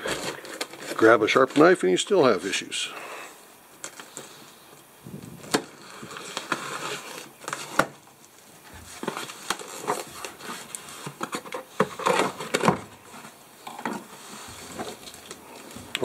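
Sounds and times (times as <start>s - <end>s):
cardboard crinkling and scraping: 0.0s - 2.8s, 5.1s - 16.0s
knife cutting cardboard box: 8.8s - 15.1s.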